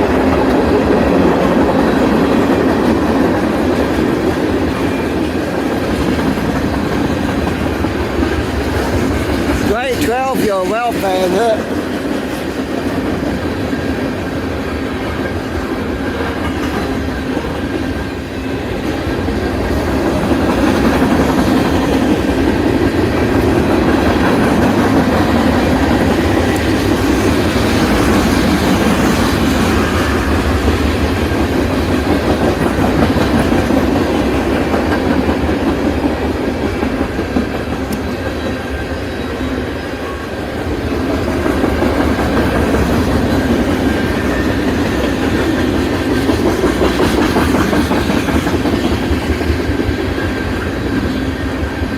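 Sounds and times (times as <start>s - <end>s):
freight train cars rolling: 0.0s - 51.9s
wheels clicking over rail joints: 40.7s - 51.9s.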